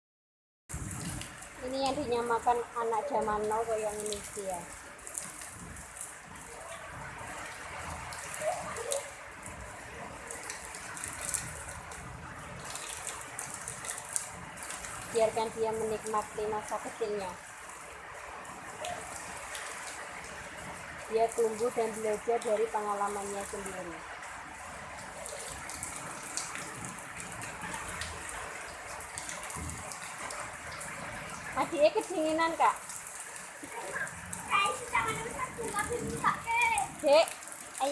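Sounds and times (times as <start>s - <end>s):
heavy rain pouring: 0.7s - 37.9s.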